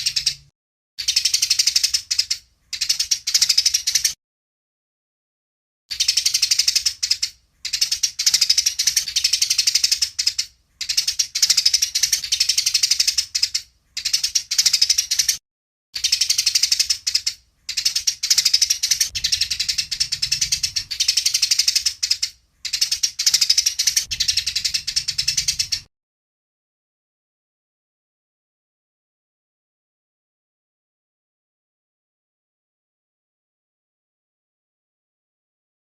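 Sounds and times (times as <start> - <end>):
sparrows chattering: 0.0 - 4.2, 5.9 - 15.4, 16.0 - 25.9.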